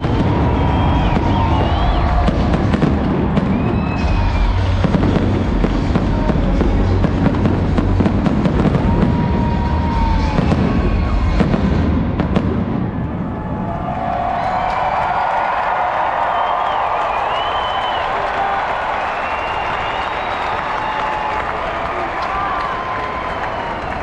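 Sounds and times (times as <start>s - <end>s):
music playing: 0.0s - 12.6s
deep rumble: 0.0s - 13.9s
fireworks bangs and crackles: 0.0s - 15.0s.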